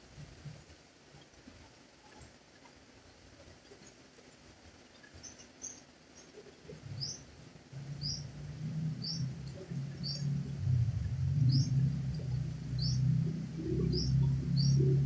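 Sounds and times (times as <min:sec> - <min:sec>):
low hum: 0:06.8 - 0:15.0
bird chirping: 0:09.0 - 0:10.4, 0:11.4 - 0:15.0.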